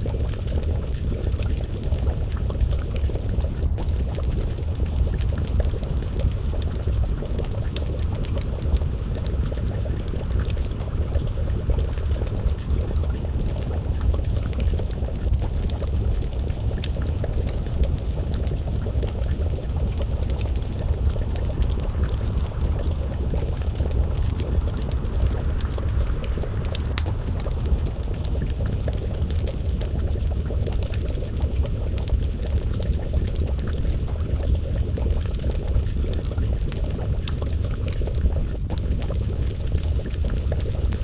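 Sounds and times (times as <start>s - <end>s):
stew bubbling in a pot: 0.0s - 41.0s
wood fire crackling: 0.0s - 41.0s.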